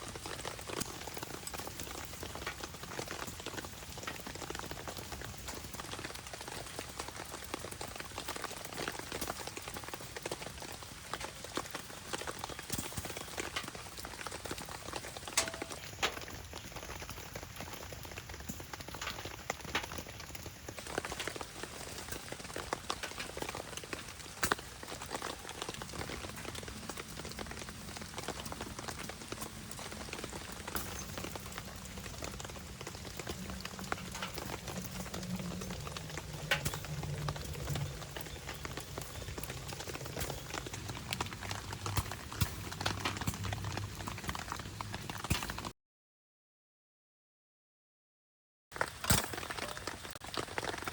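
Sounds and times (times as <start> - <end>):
steady rain: 0.0 - 45.7, 48.8 - 50.9
wood fire crackling: 0.0 - 45.7, 48.7 - 50.9
low hum: 28.2 - 39.5.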